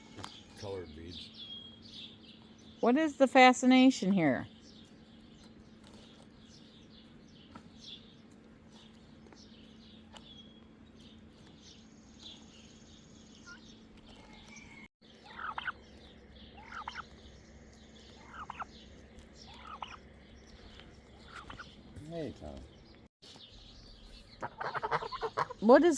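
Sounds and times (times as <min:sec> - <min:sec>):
faint high-pitched bird chirping: 0:00.0 - 0:25.9
falling turkey calls: 0:13.4 - 0:21.8, 0:24.3 - 0:25.7.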